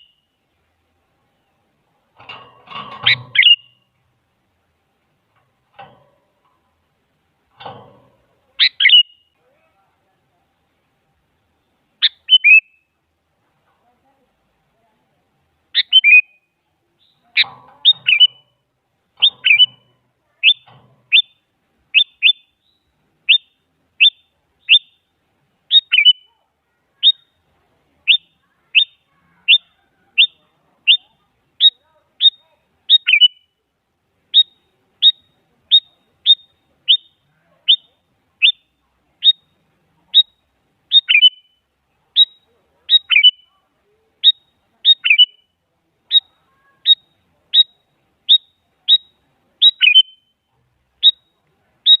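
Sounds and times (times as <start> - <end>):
bird calling in sharp notes: 3.0 - 3.9, 8.6 - 9.4, 12.0 - 12.9, 15.8 - 25.1, 25.7 - 26.4, 28.1 - 33.6, 34.3 - 43.6, 44.2 - 45.5, 46.1 - 50.4, 51.0 - 52.0.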